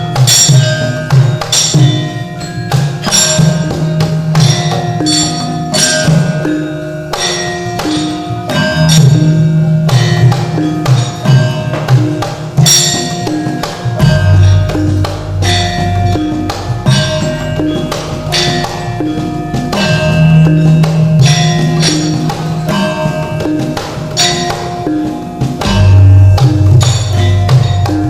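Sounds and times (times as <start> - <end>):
metallophones and gongs: 0.0 - 28.0
low drum pulse: 8.6 - 18.0, 25.4 - 28.0.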